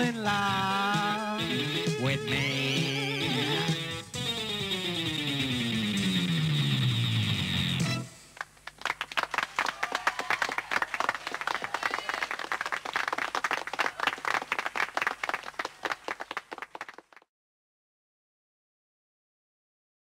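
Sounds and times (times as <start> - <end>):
audience applauding: 8.4 - 17.3.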